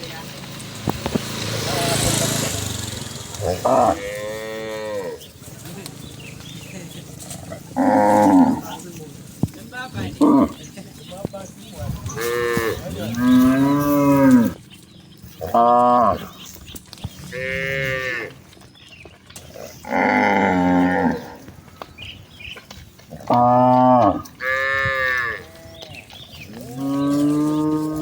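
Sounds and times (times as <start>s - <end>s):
cattle mooing: 1.7s - 5.3s, 7.3s - 8.8s, 10.0s - 10.7s, 12.0s - 14.6s, 15.4s - 16.4s, 17.3s - 18.4s, 19.6s - 21.5s, 23.1s - 28.0s.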